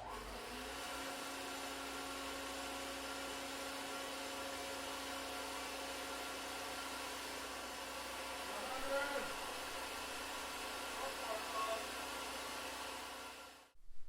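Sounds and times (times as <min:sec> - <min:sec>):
pump whirring hum: 0:00.0 - 0:13.8.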